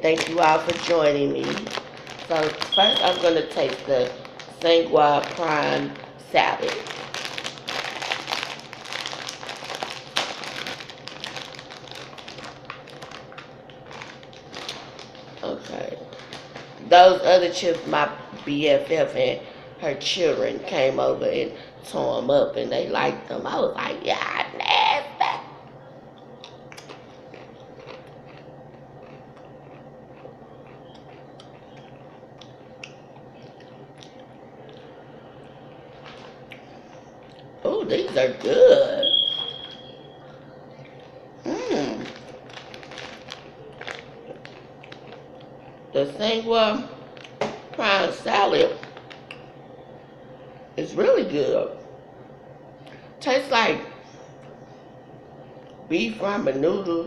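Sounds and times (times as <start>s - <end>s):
chip bag crackling: 0.0s - 17.9s, 35.6s - 40.0s, 40.8s - 45.8s, 47.0s - 49.4s
steady low hum: 0.0s - 57.0s.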